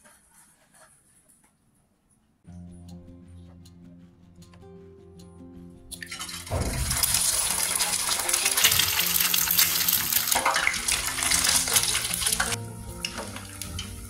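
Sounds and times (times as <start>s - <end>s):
soft background music: 2.5s - 14.0s
egg sizzling in hot oil: 6.0s - 14.0s.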